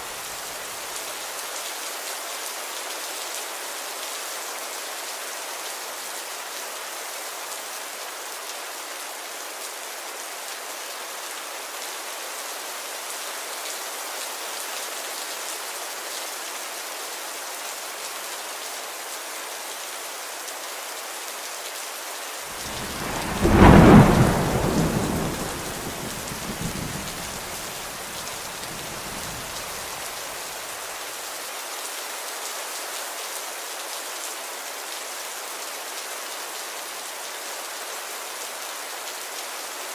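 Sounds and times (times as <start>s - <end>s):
steady rain: 0.0s - 39.9s
thunder clap rumbling: 22.6s - 30.0s.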